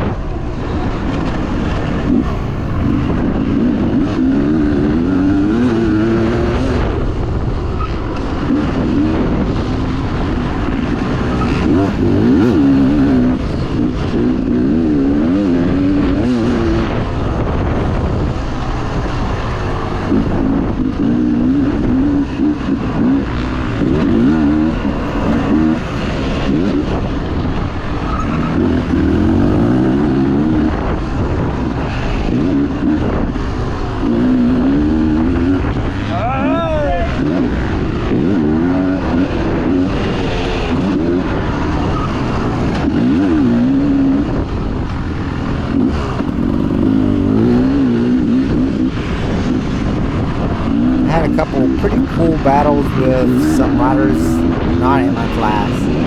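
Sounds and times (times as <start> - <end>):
wind noise: 0.0 - 5.5
dirt bike engine revving: 11.2 - 16.5, 28.4 - 30.7, 46.0 - 48.4.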